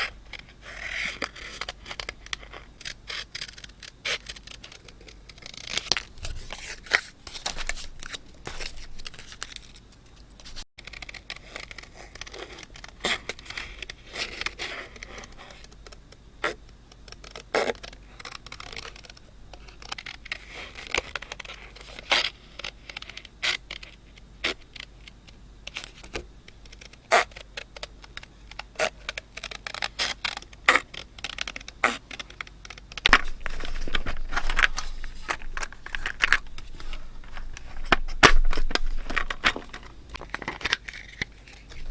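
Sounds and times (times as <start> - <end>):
paper rubbing and scraping: 0.3 - 9.8, 28.8 - 41.9.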